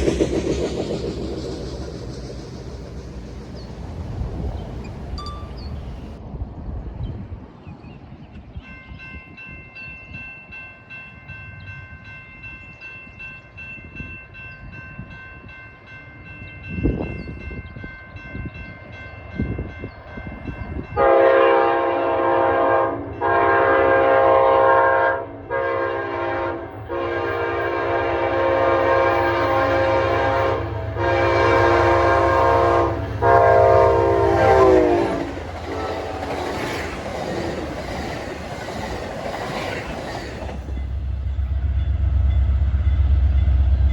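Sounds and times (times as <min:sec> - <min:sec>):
train rumbling past: 0:00.0 - 0:07.6, 0:13.5 - 0:43.9
crossing bell ringing: 0:04.8 - 0:06.2, 0:40.5 - 0:43.9
locomotive horn blasts: 0:20.9 - 0:36.4.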